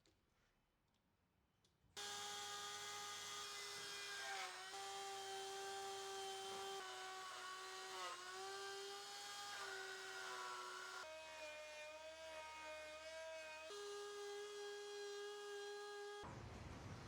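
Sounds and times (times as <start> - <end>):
power tool motor whine: 2.0 - 11.1.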